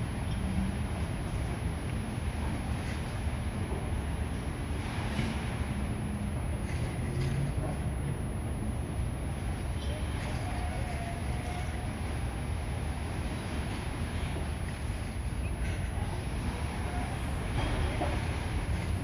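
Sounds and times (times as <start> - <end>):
faint high whine: 0.0 - 19.0
outdoor traffic rumble: 0.0 - 19.0
distant wavering voices: 8.7 - 19.0.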